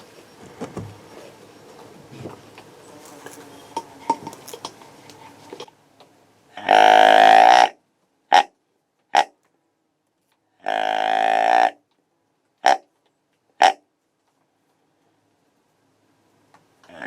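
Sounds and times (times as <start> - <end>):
deer grunt call: 6.5 - 8.5, 10.6 - 11.8.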